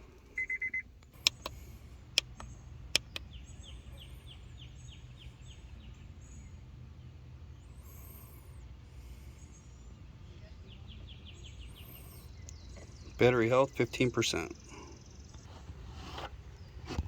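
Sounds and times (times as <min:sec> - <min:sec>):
sharp clicks: 0:00.0 - 0:03.3
low steady hum: 0:00.0 - 0:17.0
tester beeping: 0:00.4 - 0:00.8.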